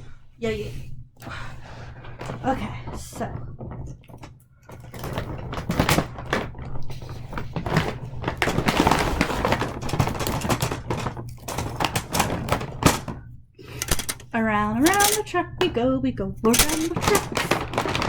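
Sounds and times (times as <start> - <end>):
plastic clicks and clatter: 2.1 - 15.3, 16.5 - 18.0
packaging rustling: 4.8 - 15.3, 16.5 - 18.0.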